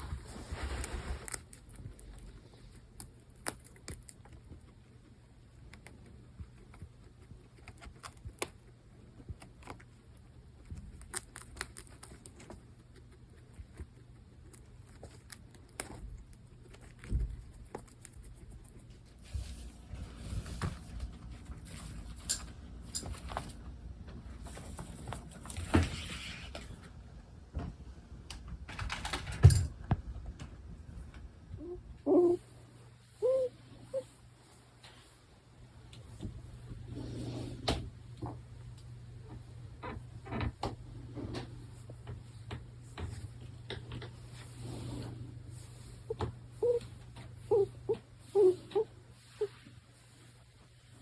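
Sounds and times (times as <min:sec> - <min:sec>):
guinea pigs clicking and tapping: 0:00.0 - 0:19.6, 0:28.2 - 0:31.3, 0:37.6 - 0:44.5
faint low hum: 0:00.0 - 0:51.0.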